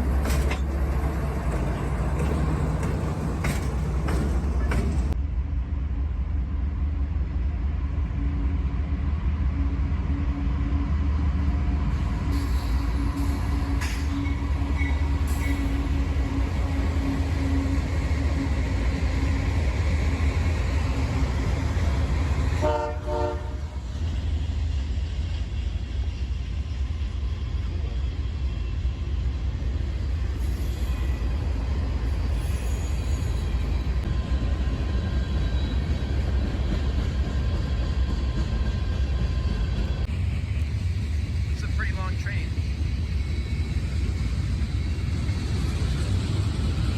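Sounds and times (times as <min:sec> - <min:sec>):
diesel locomotive rumbling: 0:00.0 - 0:46.9
train rolling noise: 0:00.0 - 0:46.9
train horn blast: 0:22.6 - 0:23.8.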